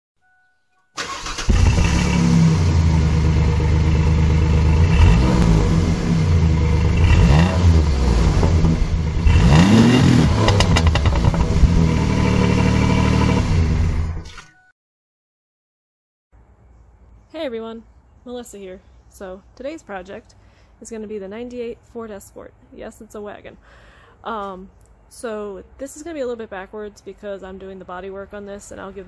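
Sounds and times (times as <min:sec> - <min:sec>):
car engine revving: 0:01.0 - 0:14.2.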